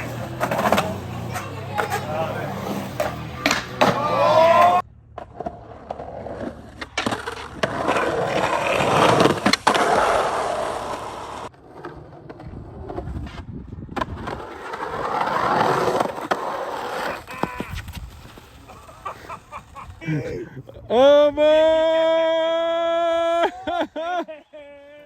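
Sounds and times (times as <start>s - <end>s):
skateboard clack: 0.0s - 19.8s
skateboard wheels rolling on concrete: 0.0s - 25.0s.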